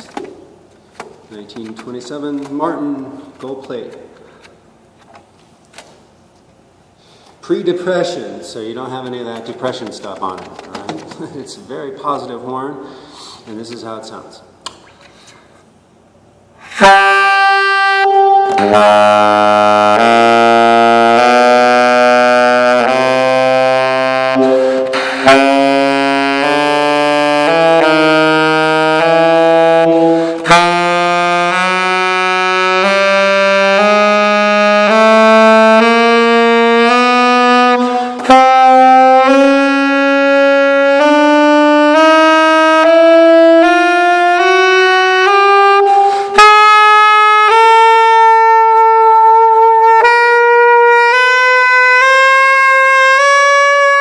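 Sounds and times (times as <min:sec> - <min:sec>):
player breathing: 0:12.8 - 0:13.5, 0:24.4 - 0:25.2, 0:30.0 - 0:30.4, 0:46.0 - 0:46.4
saxophone playing a scale: 0:16.6 - 0:54.0.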